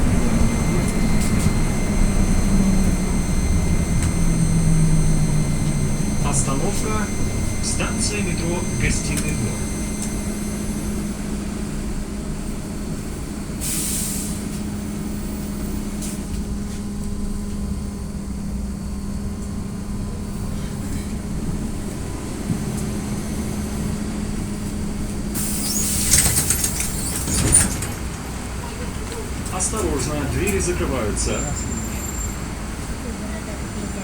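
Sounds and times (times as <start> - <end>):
pneumatic air hiss: 13.6 - 14.6, 25.4 - 27.9.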